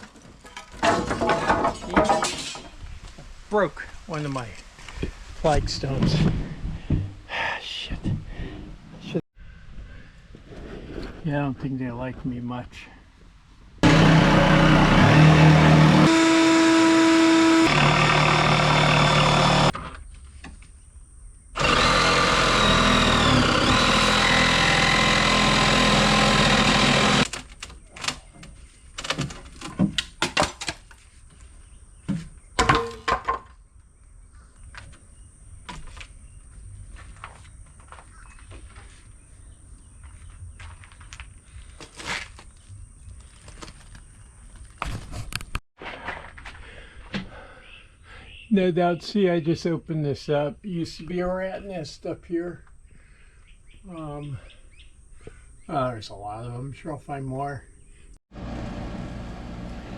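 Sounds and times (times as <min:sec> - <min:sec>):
knocks and clatters: 0:00.0 - 0:02.8
power tool running: 0:13.8 - 0:19.8, 0:21.6 - 0:27.3, 0:58.3 - 0:59.9.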